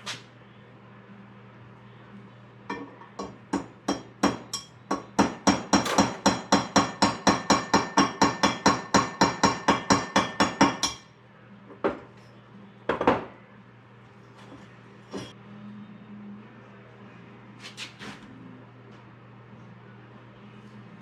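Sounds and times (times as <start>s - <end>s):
hammer tapping on metal: 2.7s - 11.0s.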